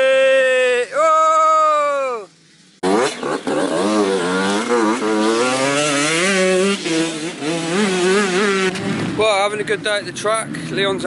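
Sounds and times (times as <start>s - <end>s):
motocross engines revving: 2.3s - 11.0s.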